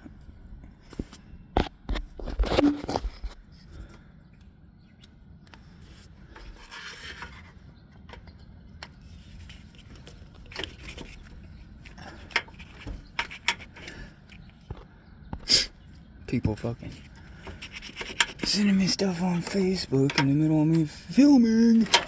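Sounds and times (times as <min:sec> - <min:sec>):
rubbing and scraping: 0:01.9 - 0:03.4, 0:05.8 - 0:08.2, 0:08.8 - 0:14.1, 0:16.8 - 0:22.0
tools clicking and knocking on metal: 0:12.2 - 0:14.0, 0:17.4 - 0:18.6, 0:19.4 - 0:20.8, 0:21.8 - 0:22.0.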